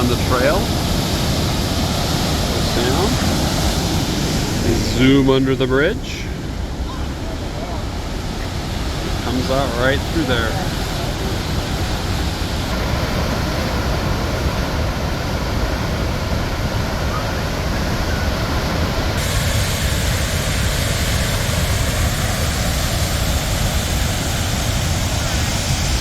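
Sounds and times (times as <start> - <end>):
waterfall roaring: 0.0 - 26.0.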